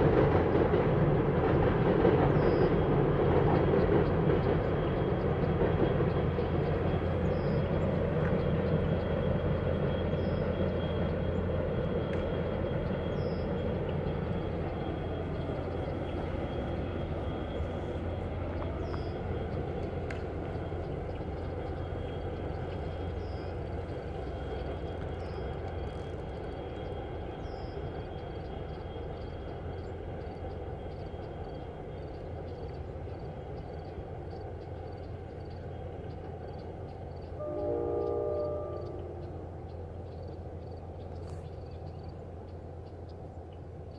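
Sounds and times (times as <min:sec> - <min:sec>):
distant train rumbling on viaduct: 0:00.0 - 0:43.9
train horn chord: 0:37.4 - 0:39.7.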